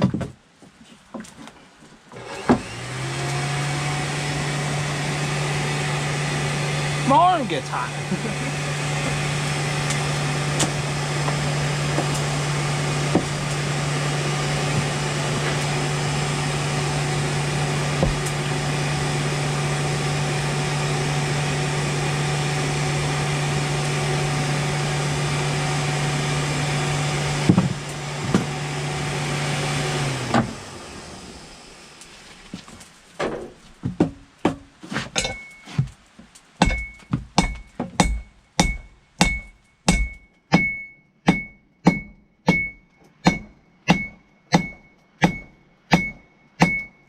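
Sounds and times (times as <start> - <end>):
electric blower humming: 2.1 - 32.1.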